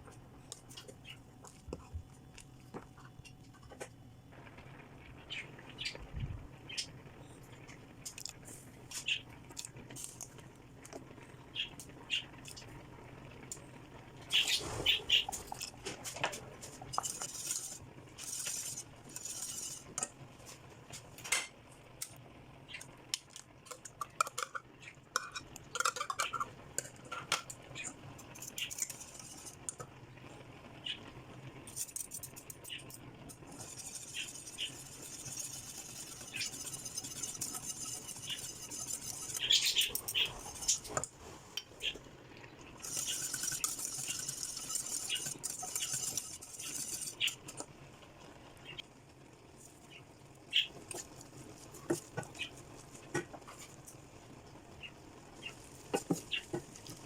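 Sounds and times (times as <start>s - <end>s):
metal utensil scraping cookware: 14.4s - 20.1s, 23.7s - 29.8s, 31.6s - 41.1s, 42.8s - 47.6s.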